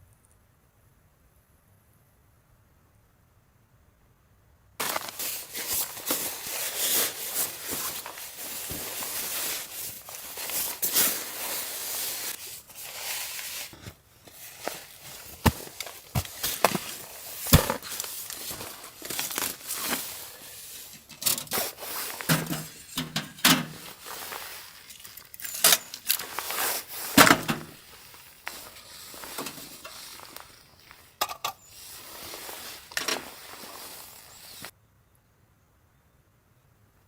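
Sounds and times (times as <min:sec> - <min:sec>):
packaging rustling: 0:04.8 - 0:34.7.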